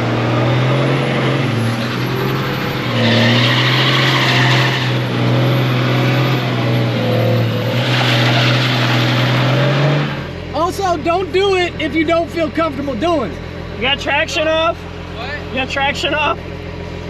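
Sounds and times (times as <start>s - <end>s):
car engine revving high: 0.0s - 10.6s
tyres spinning on wet pavement: 1.4s - 10.3s.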